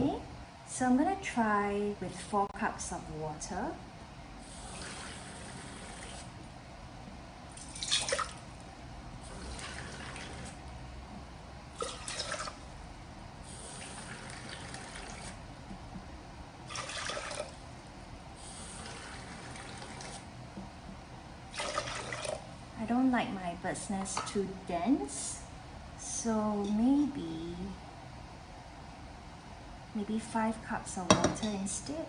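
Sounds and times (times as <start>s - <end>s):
running water: 21.5s - 22.5s.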